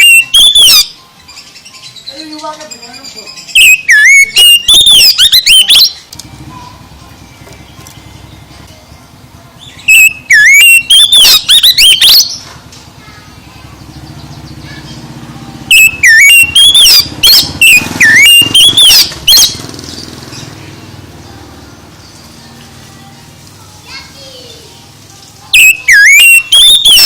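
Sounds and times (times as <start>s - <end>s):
bird singing whistled phrases: 3.0s - 6.1s, 9.6s - 12.4s, 15.7s - 19.6s, 25.5s - 27.0s.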